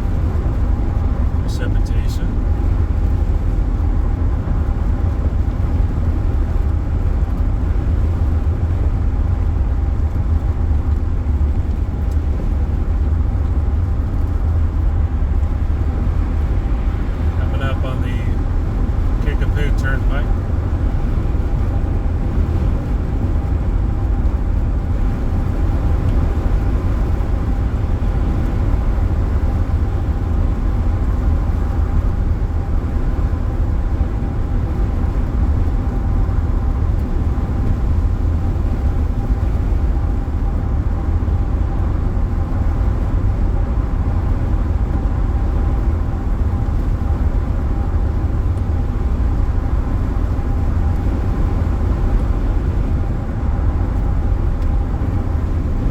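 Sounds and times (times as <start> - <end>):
faint steady whine: 0.0 - 55.9
road and engine rumble in car: 0.0 - 55.9.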